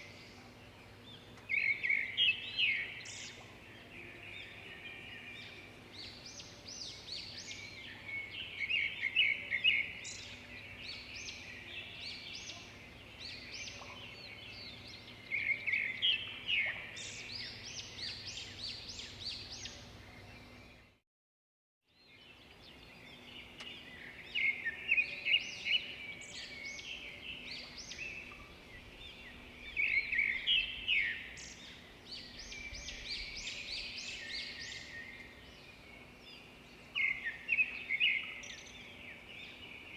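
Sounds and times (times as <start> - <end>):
birds chirping: 0.0 - 21.0, 22.0 - 39.9.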